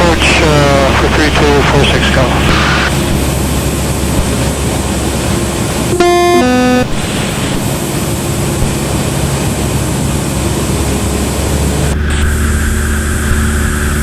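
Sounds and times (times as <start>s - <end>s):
airplane engine and propeller: 0.0s - 14.0s
rushing airflow: 0.0s - 14.0s
short electronic tone: 5.9s - 7.4s.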